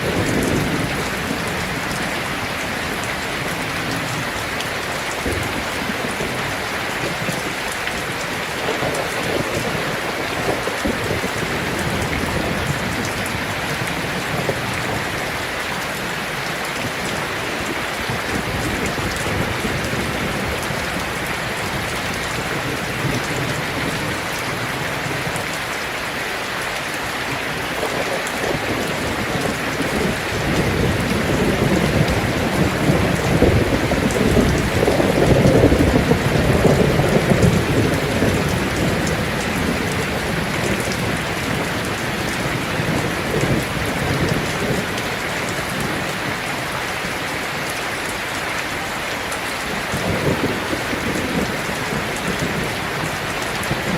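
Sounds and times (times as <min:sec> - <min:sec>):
rain on a tin roof: 0:00.0 - 0:53.9
thunder rumble: 0:27.5 - 0:46.1.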